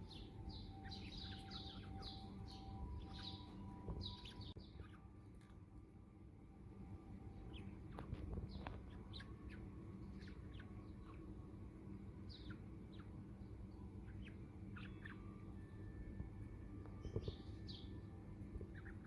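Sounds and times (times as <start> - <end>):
steady low hum: 0.0 - 19.0
budgerigar chirping: 0.1 - 5.0, 14.0 - 15.4, 18.7 - 19.0.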